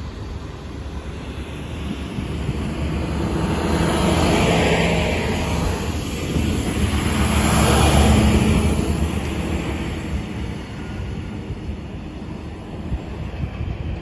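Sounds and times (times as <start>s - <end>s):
diesel train engines passing: 0.0s - 14.0s.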